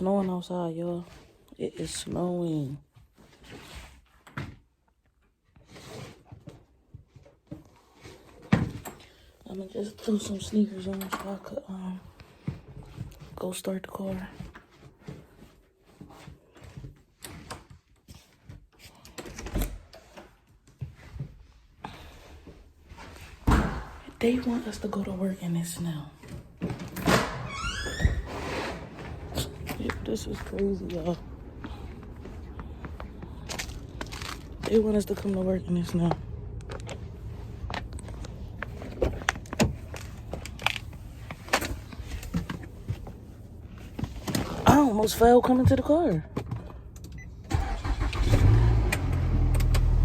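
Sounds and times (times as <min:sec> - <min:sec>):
low steady rumble: 0:28.8 - 0:47.5
handling clicks and knocks: 0:32.1 - 0:43.1.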